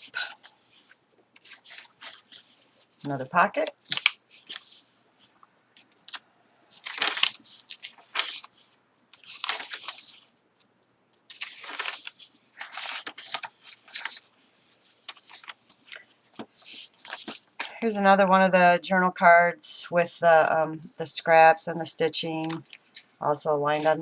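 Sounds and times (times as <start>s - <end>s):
paper pages rustling: 0.0s - 17.7s, 22.4s - 24.0s.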